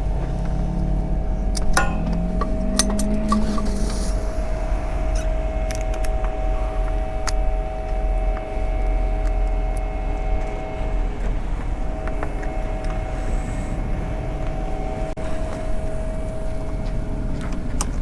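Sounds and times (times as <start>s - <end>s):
hub motor whine: 0.0s - 18.0s
wind on microphone: 0.0s - 18.0s.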